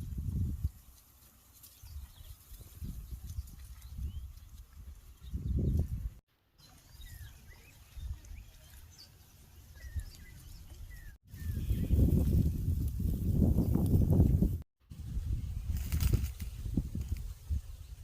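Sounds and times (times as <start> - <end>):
small birds chirping: 0.6 - 12.6.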